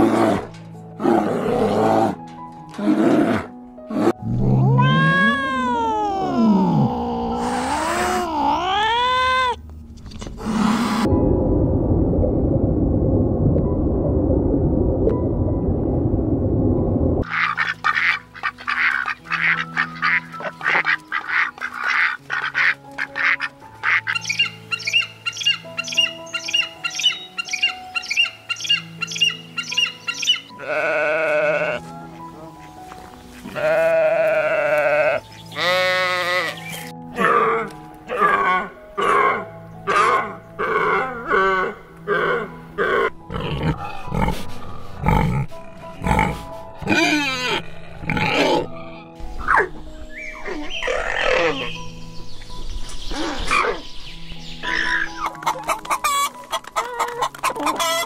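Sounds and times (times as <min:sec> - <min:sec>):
soft background music: 0:00.0 - 0:58.0
animal wavering cries: 0:04.4 - 0:09.6, 0:46.8 - 0:49.7, 0:50.4 - 0:51.8
low rumbling noise: 0:09.7 - 0:17.2
animal grunting: 0:37.2 - 0:49.0.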